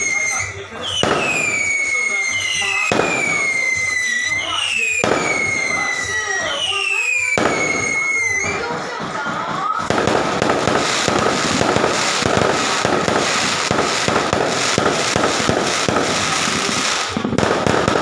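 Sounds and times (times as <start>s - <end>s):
high whistling tone: 0.0s - 8.6s
fireworks crackling: 0.0s - 18.0s.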